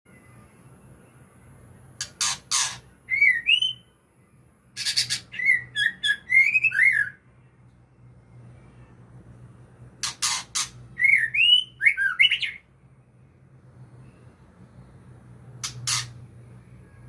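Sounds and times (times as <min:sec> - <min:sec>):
bird singing whistled notes: 0:02.2 - 0:04.0, 0:04.7 - 0:07.3, 0:10.9 - 0:12.7.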